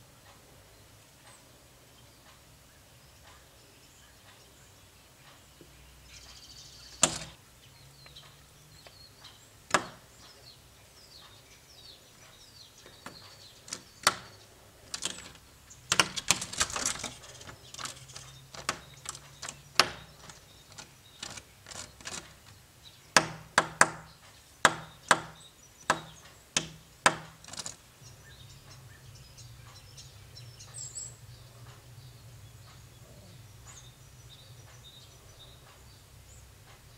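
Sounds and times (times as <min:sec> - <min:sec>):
woodpecker knocking on glass: 0:06.9 - 0:07.4, 0:09.7 - 0:10.2, 0:12.8 - 0:27.8.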